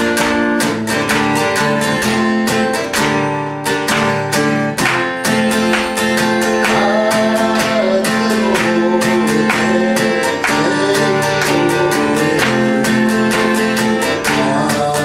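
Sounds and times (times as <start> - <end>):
acoustic guitar strumming: 0.0 - 15.0
person singing: 5.2 - 15.0.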